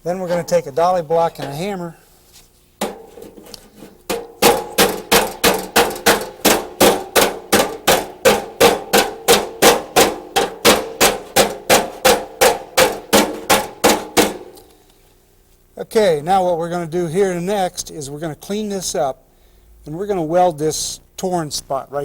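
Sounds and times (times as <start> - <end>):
hammer blows on metal: 4.0 - 14.6.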